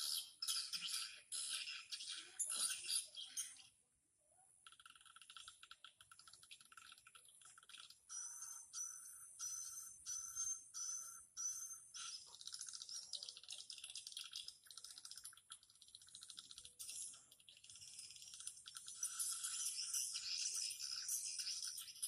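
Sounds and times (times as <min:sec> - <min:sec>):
rapid clicking bird twitter: 0:00.0 - 0:03.6, 0:04.6 - 0:22.0
buzzy bird chirps: 0:00.0 - 0:03.7, 0:04.6 - 0:22.0.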